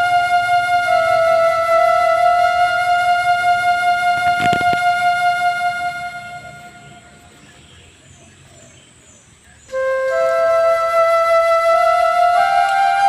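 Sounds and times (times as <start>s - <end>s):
quick clicks: 4.2s - 5.0s.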